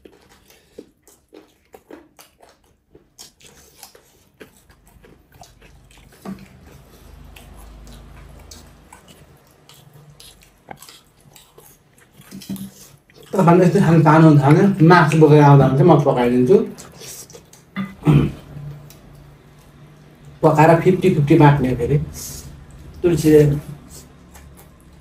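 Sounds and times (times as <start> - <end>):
mouth clicks and smacks: 0.0 - 13.4, 23.7 - 25.0
person chewing and biting food: 0.0 - 15.3, 16.7 - 20.4, 23.7 - 25.0.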